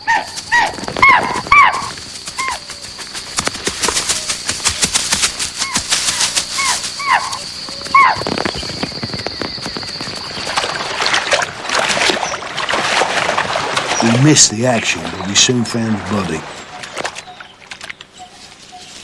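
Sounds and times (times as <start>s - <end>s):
deer alarm barks: 0.0s - 2.6s, 5.6s - 8.3s
crackling rustles: 0.1s - 15.1s, 16.1s - 19.0s.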